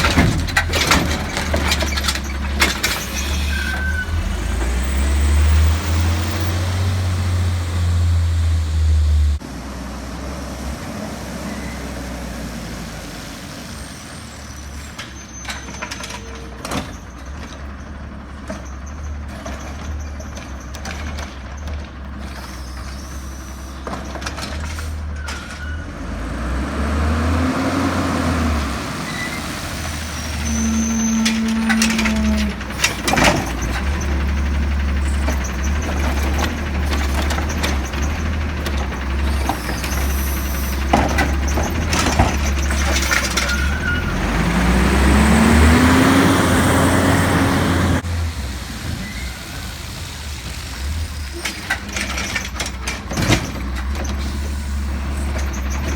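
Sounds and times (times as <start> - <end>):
cart knocking and clattering: 0.0 - 6.4, 14.7 - 23.0, 29.7 - 48.0, 50.5 - 55.9
garbage truck diesel engine: 0.0 - 55.9.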